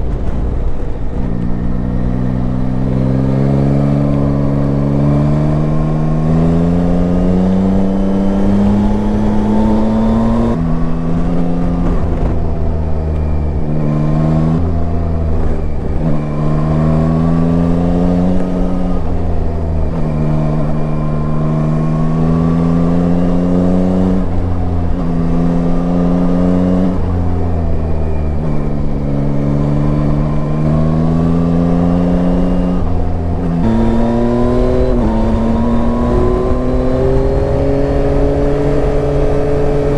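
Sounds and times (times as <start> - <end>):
motorcycle engine accelerating: 0.0 - 39.9
wind rumble: 0.0 - 39.9.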